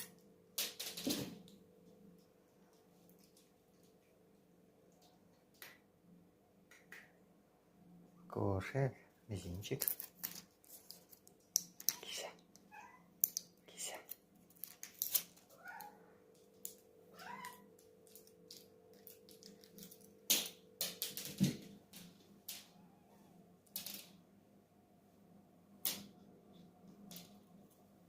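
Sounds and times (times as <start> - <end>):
cat meowing: 12.7 - 13.1, 15.5 - 16.0, 17.1 - 17.6.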